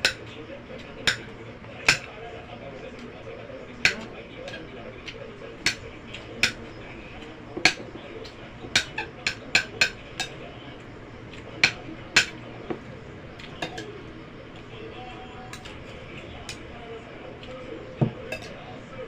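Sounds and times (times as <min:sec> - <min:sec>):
cutlery clinking on a plate: 0:00.0 - 0:02.1, 0:03.8 - 0:10.6, 0:11.3 - 0:14.0, 0:15.5 - 0:16.6, 0:17.4 - 0:18.7.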